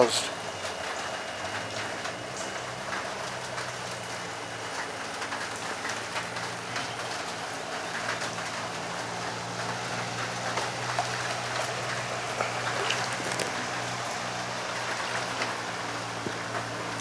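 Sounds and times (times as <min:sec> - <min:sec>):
low steady hum: 0:00.0 - 0:17.0
steady rain falling: 0:00.0 - 0:17.0.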